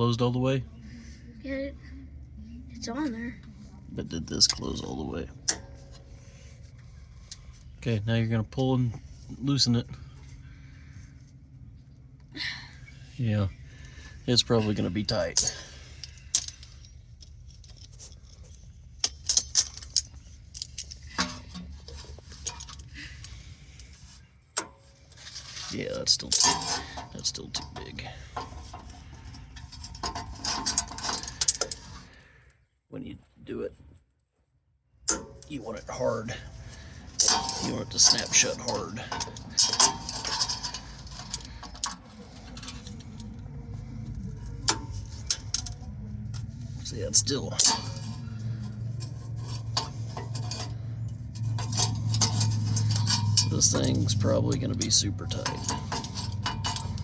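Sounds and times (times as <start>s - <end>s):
low steady hum: 0.0s - 57.0s
metallic clicks of filter wrench: 26.3s - 32.1s, 36.6s - 43.5s, 47.6s - 57.0s.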